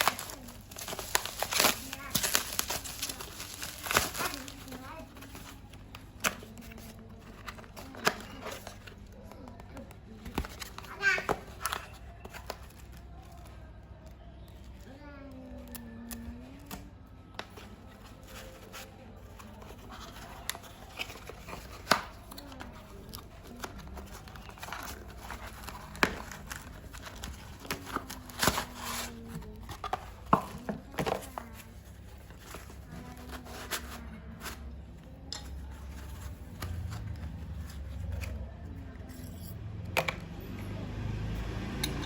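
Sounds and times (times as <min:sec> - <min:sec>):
faint voices: 0:00.0 - 0:42.0
hard objects clicking and knocking: 0:19.3 - 0:31.6.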